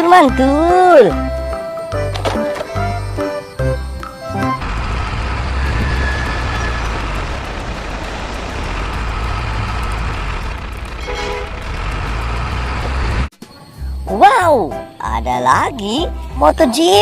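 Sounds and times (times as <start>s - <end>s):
heavy vehicle engine running: 1.4s - 13.3s
brief tone: 5.6s - 7.0s.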